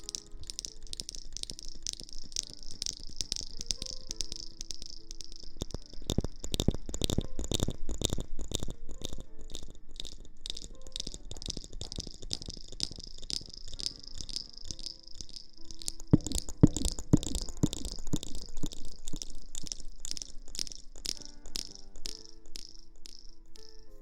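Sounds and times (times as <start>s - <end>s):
soft tapping sounds: 0.0s - 24.0s.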